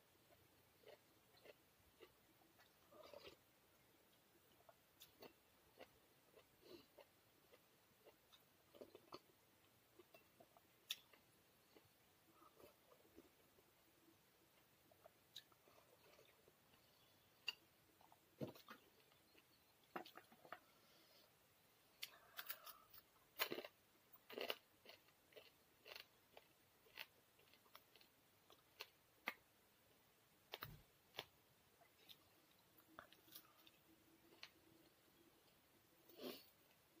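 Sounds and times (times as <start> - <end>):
person chewing crunchy food: 0.3 - 3.4, 22.0 - 29.4, 32.8 - 35.0.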